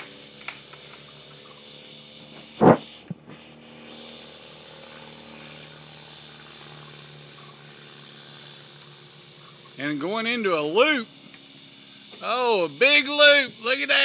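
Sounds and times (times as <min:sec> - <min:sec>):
insects buzzing: 0:00.0 - 0:14.0
small aircraft engine drone: 0:00.0 - 0:14.0
loud sharp knock: 0:02.6 - 0:03.2.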